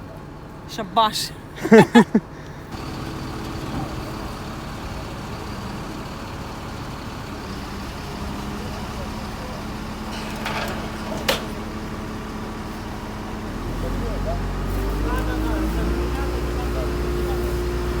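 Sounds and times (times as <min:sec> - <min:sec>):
truck engine running: 0:00.1 - 0:18.0.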